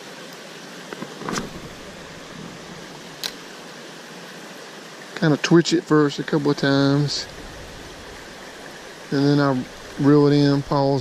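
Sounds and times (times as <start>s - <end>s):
creek water running: 0.0s - 11.0s
small clicks and knocks: 3.2s - 3.4s.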